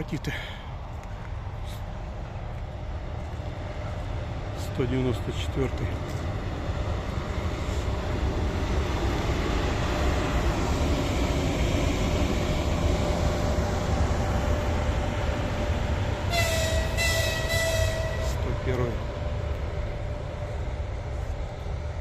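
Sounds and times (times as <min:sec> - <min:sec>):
train wheels rumbling on rails: 0:00.0 - 0:22.0
train horn: 0:16.3 - 0:18.5.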